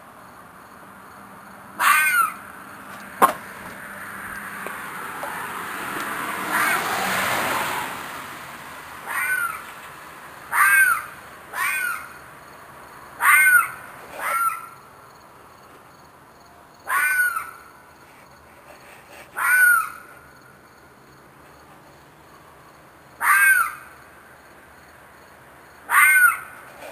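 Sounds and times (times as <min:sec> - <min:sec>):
animal shrill screams: 0:01.8 - 0:02.4, 0:06.5 - 0:07.0, 0:09.1 - 0:09.6, 0:10.5 - 0:12.1, 0:13.2 - 0:14.7, 0:16.9 - 0:17.6, 0:19.4 - 0:20.0, 0:23.2 - 0:23.8, 0:25.9 - 0:26.5.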